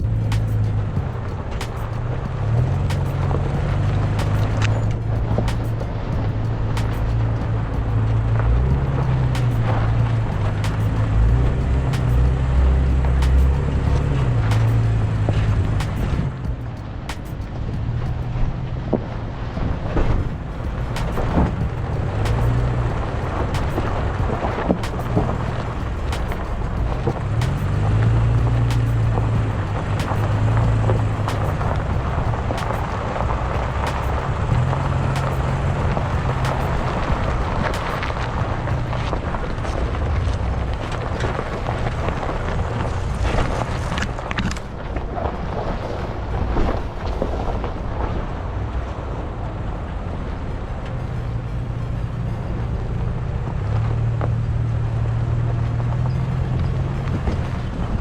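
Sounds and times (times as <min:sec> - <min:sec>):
truck engine humming: 0:00.0 - 0:58.0
tyre and road noise: 0:00.0 - 0:58.0.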